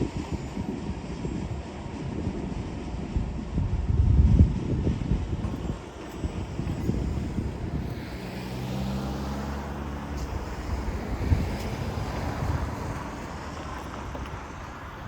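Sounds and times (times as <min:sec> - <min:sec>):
vehicle passing with engine hum: 0:05.4 - 0:15.0.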